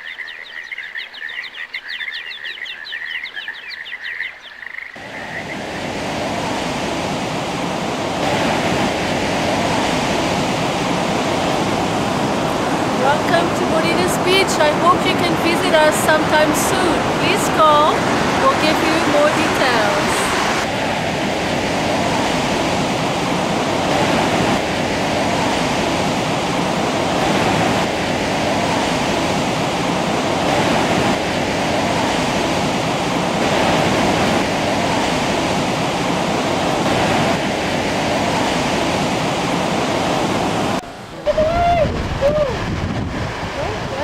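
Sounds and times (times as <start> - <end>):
whistled bird chirps: 0.0 - 4.6
ocean surf rushing: 5.0 - 44.0.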